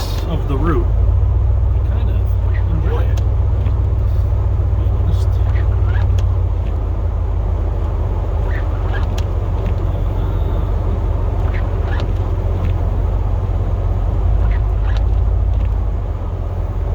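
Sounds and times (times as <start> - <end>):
truck engine droning: 0.0 - 16.9
short squeaks: 5.2 - 7.0, 8.2 - 12.9, 14.2 - 15.9.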